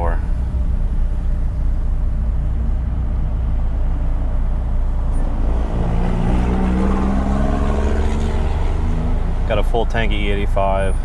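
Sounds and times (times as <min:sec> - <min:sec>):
car engine drone from inside cabin: 0:00.0 - 0:11.0.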